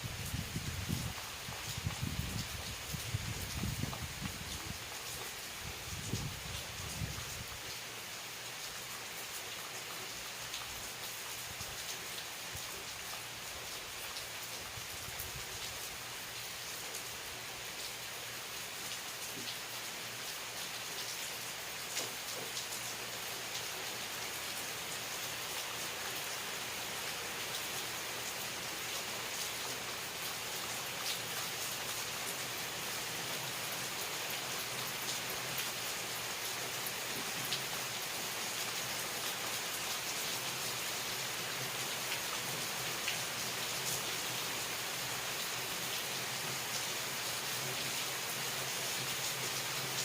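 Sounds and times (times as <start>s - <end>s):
steady rain hiss: 0.0s - 50.0s
raindrops ticking on surface: 0.8s - 15.8s, 18.8s - 24.1s.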